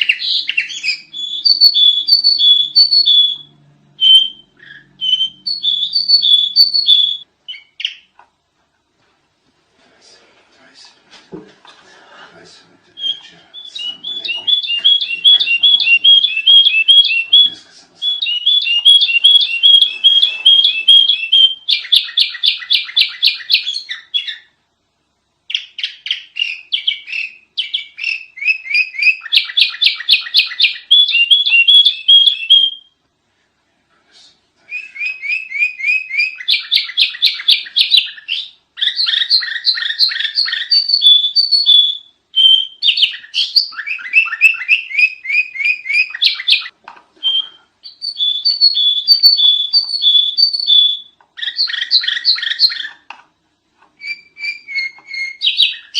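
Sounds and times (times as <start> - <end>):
bulbul chirping: 0.0 - 8.2, 13.0 - 24.5, 34.8 - 53.1.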